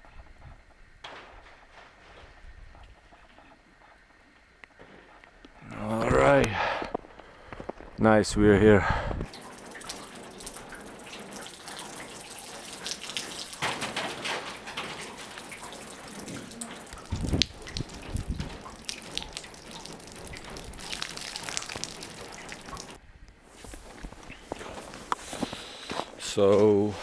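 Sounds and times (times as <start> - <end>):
background hiss: 0.0 - 27.0
water dripping and trickling: 9.2 - 23.0, 23.6 - 27.0
low thumps: 17.0 - 23.0.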